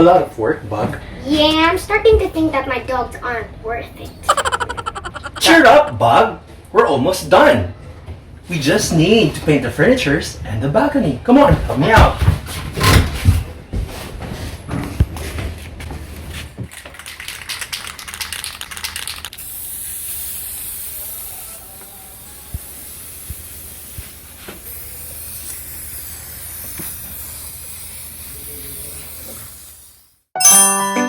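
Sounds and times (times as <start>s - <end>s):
spray paint hissing: 4.3s - 5.4s, 17.8s - 30.2s.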